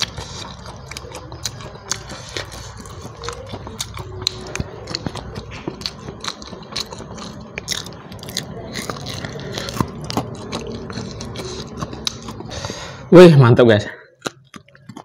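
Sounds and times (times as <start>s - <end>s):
person chewing and biting food: 0.0s - 13.1s, 14.0s - 15.0s.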